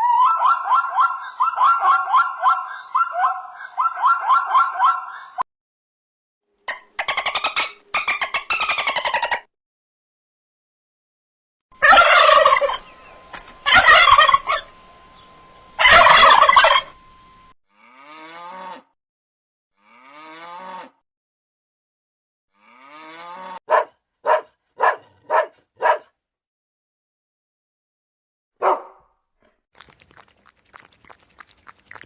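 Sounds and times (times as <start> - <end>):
turkey gobbling: 0.0 - 5.4, 6.7 - 9.5, 11.8 - 12.9, 13.6 - 14.7, 15.8 - 16.9
drawn-out bird calls: 11.8 - 13.0, 15.8 - 16.9.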